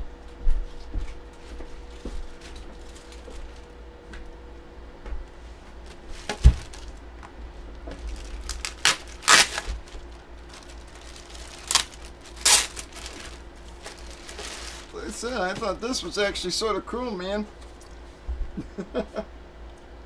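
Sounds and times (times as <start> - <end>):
packaging crinkling and rustling: 1.9 - 3.7, 5.8 - 16.2.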